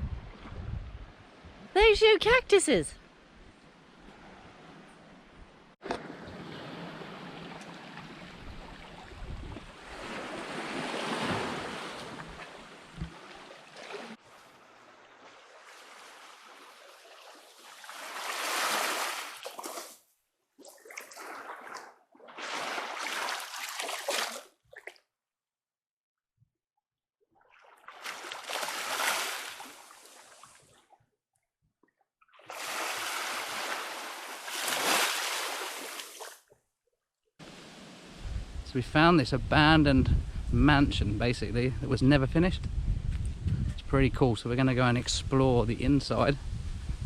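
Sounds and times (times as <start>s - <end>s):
sea water washing at shore: 5.8s - 20.0s, 20.6s - 24.6s, 27.4s - 30.8s, 32.4s - 36.4s.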